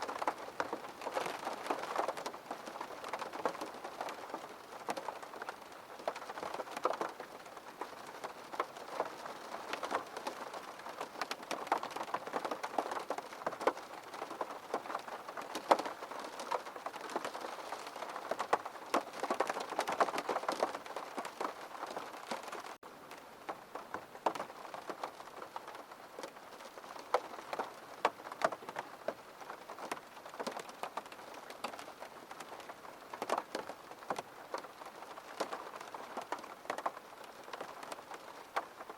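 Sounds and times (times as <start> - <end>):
rain hitting window pane: 0.0 - 38.9.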